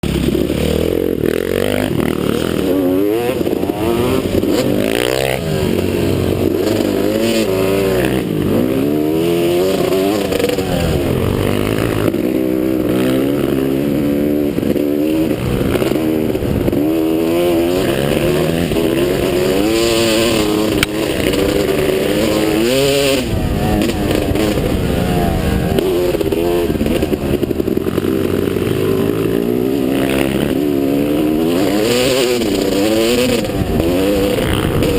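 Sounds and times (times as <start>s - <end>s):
motocross bike engine revving: 0.0s - 34.9s.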